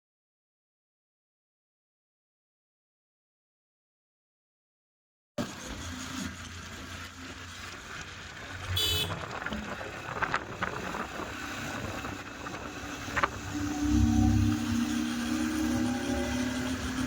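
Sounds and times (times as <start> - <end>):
motorcycle road rumble: 5.4 - 17.0
wind rush: 9.0 - 17.0.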